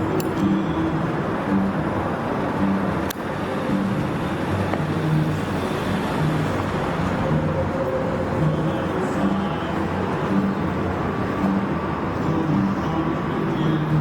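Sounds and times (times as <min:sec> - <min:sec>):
car driving road noise: 0:00.0 - 0:14.0
sharp click: 0:00.2 - 0:00.5.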